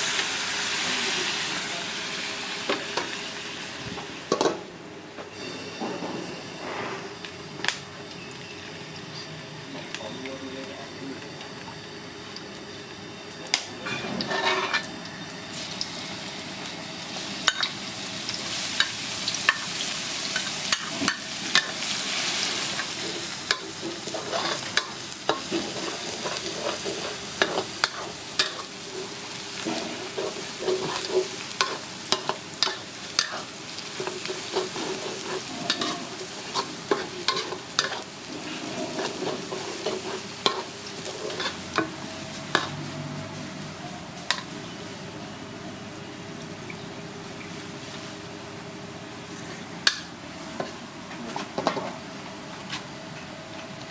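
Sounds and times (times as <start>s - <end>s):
food sizzling in hot oil: 0.0s - 4.6s, 11.5s - 45.2s
metal utensil clanking on wok: 13.8s - 14.9s, 23.2s - 42.0s.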